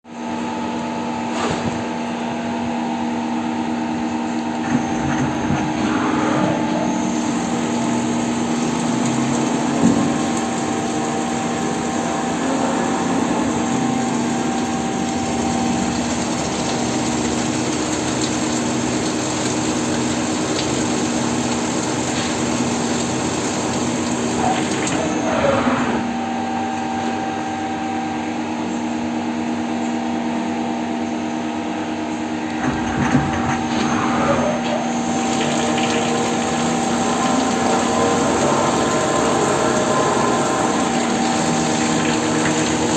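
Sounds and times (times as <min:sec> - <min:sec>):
lathe machine hum: 0:04.3 - 0:26.8, 0:32.4 - 0:42.9.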